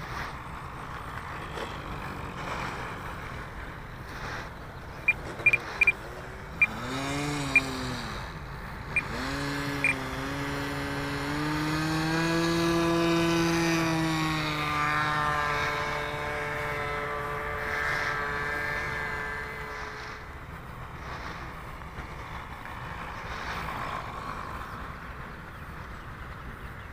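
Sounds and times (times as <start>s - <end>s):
model plane engine: 0.0s - 26.9s
short high beeps: 5.1s - 6.0s.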